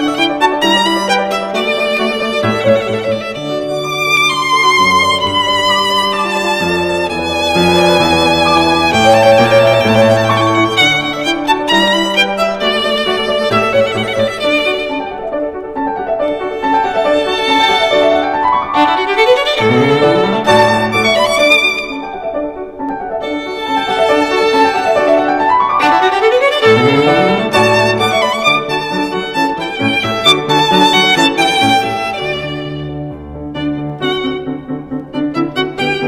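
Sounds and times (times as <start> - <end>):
violin melody: 0.0 - 36.0.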